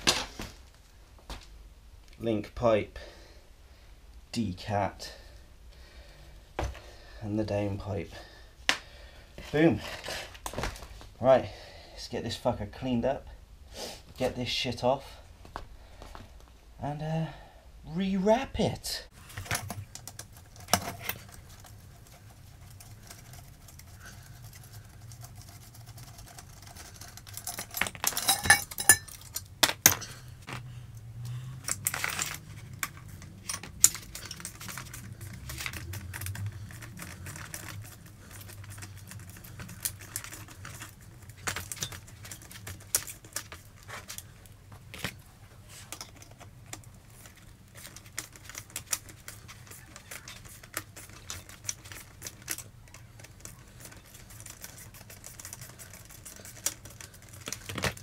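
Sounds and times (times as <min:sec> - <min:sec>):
metal clinks and rattles: 0:19.4 - 0:30.2, 0:31.6 - 0:43.8.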